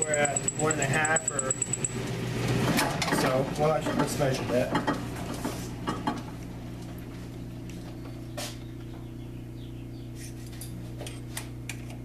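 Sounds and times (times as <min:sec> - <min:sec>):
lathe motor humming: 0:00.0 - 0:08.2.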